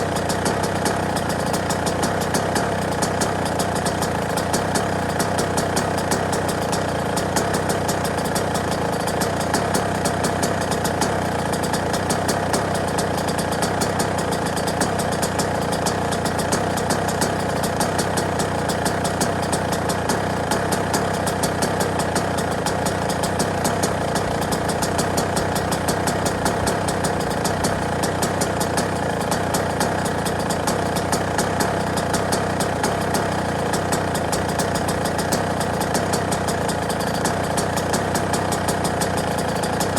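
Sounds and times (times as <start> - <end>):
two-stroke engine idling: 0.0 - 39.9.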